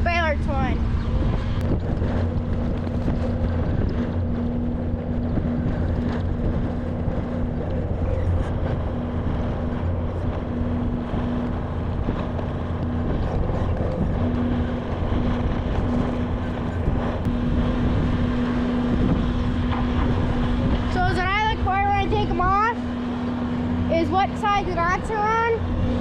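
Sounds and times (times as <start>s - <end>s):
farm machine engine humming: 0.0s - 26.0s.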